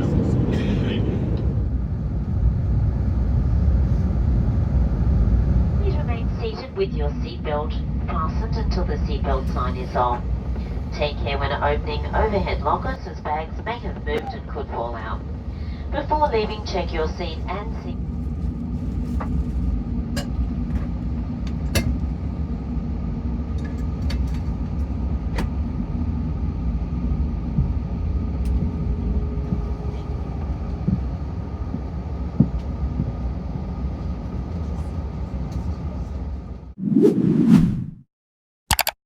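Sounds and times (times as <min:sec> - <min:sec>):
airplane cabin low rumble: 0:00.0 - 0:36.8
faint hum: 0:00.0 - 0:36.8
sharp clicks: 0:38.7 - 0:39.0.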